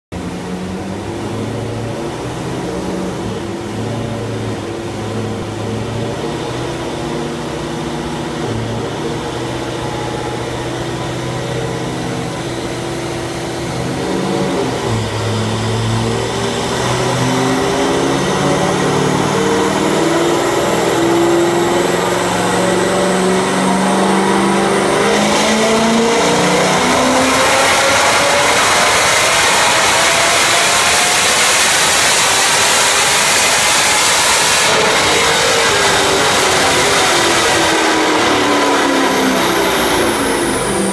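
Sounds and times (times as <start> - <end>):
car engine on dyno: 0.1 - 40.9
high whine: 0.2 - 40.9.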